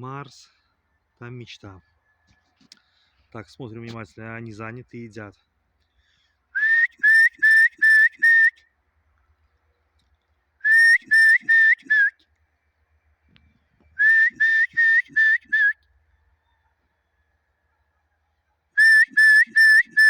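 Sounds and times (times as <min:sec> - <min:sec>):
person whistling: 0:06.6 - 0:08.5, 0:10.6 - 0:12.2, 0:14.0 - 0:15.8, 0:18.8 - 0:20.0.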